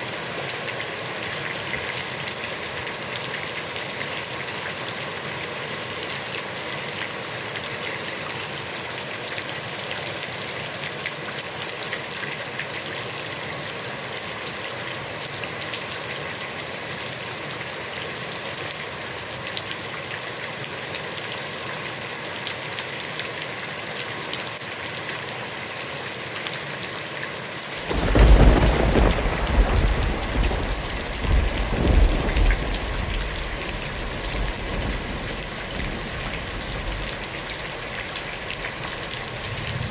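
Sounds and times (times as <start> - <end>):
heavy rain on a pond: 0.0 - 39.9
rolling thunder: 27.8 - 39.9.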